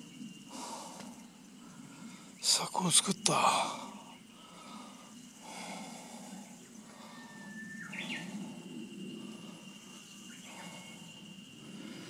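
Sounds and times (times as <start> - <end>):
faint steady high tone: 7.0 - 12.0
bird whistling call: 7.1 - 8.4.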